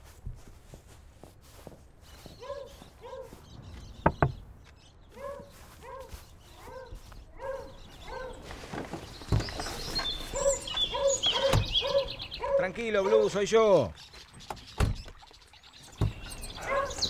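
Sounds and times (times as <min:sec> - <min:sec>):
dog barking: 0:02.4 - 0:03.4, 0:05.1 - 0:08.4, 0:10.3 - 0:13.3, 0:16.6 - 0:17.0
dull thump: 0:03.8 - 0:04.5
sharp knocks: 0:04.0 - 0:04.4.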